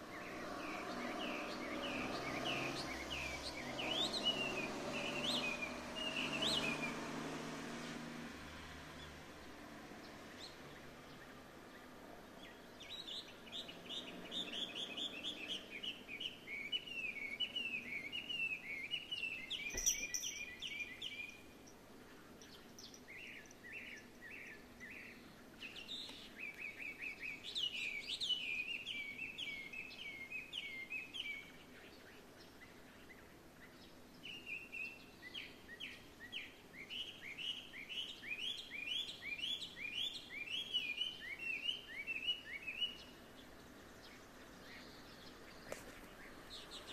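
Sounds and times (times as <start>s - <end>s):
bird whistling song: 0.2s - 7.0s, 12.8s - 21.5s, 22.5s - 32.2s, 33.1s - 43.1s.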